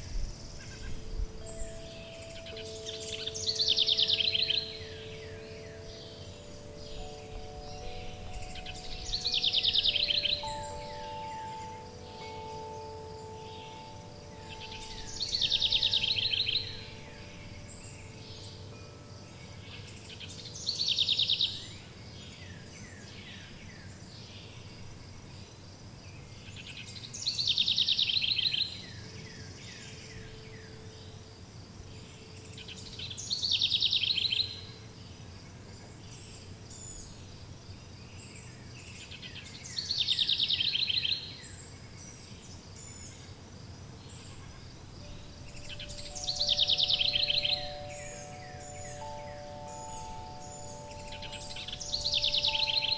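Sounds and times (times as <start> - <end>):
songbird trilling: 0.0 - 24.7, 32.2 - 34.8, 39.0 - 43.2, 44.2 - 52.9
soft background hiss: 0.0 - 52.9
chime ringing: 1.3 - 20.7, 45.0 - 52.9.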